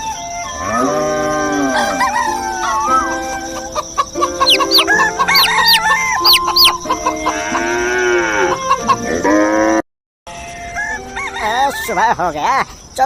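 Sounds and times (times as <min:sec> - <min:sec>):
rooster crowing: 0:00.7 - 0:03.7, 0:04.4 - 0:07.7, 0:10.6 - 0:12.1
small birds chirping: 0:02.7 - 0:07.3.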